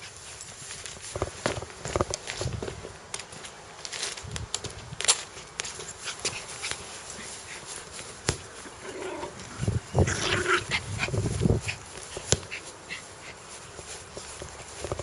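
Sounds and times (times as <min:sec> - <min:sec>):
dog growling: 0:08.8 - 0:10.9.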